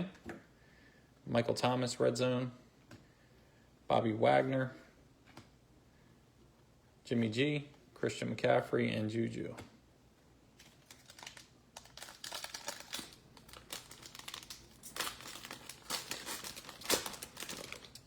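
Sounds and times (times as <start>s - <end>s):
card wrapper crinkling: 10.6s - 18.0s.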